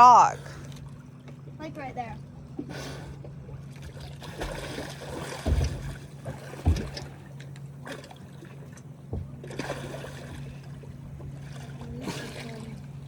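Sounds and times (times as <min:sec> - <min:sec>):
low engine hum: 0:00.0 - 0:13.0
water sloshing and splashing: 0:00.0 - 0:13.0
dull thumps: 0:05.4 - 0:07.1, 0:09.1 - 0:09.4.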